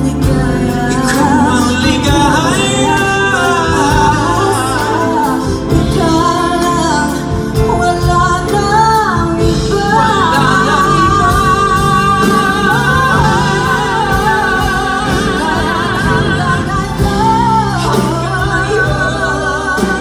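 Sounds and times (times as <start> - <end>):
backing accompaniment: 0.0 - 20.0
person singing with vibrato: 0.0 - 20.0.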